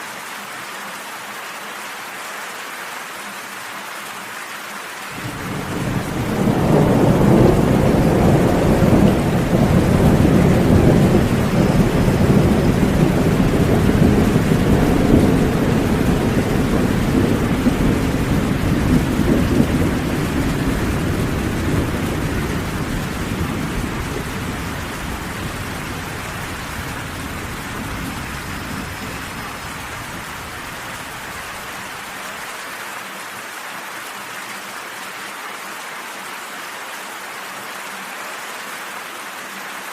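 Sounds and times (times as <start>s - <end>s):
steady rain: 0.0s - 39.9s
deep roll of thunder: 5.2s - 32.0s.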